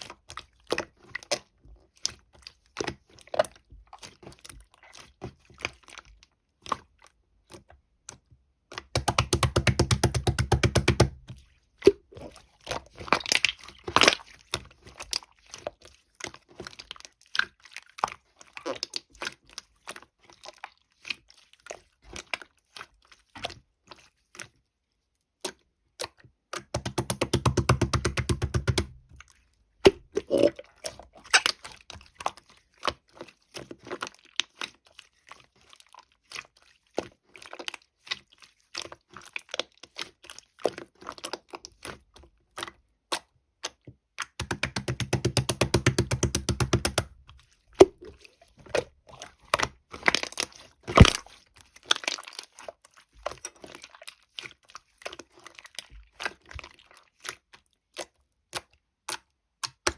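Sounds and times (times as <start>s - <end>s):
crisp clicks and crunching: 50.0s - 52.5s.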